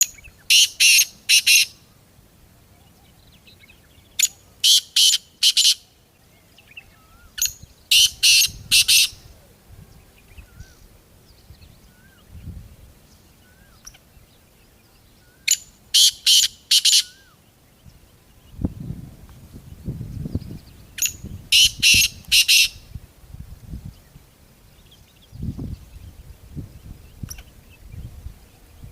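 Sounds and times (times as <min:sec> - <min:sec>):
harsh grating bird call: 0:00.5 - 0:01.8, 0:04.2 - 0:05.9, 0:07.0 - 0:09.2, 0:15.4 - 0:17.3, 0:21.0 - 0:22.9
faint small bird chirps: 0:23.9 - 0:28.9.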